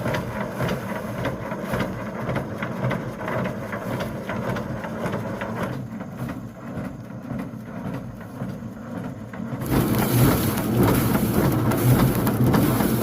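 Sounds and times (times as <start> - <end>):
machine humming: 6.6 - 13.0.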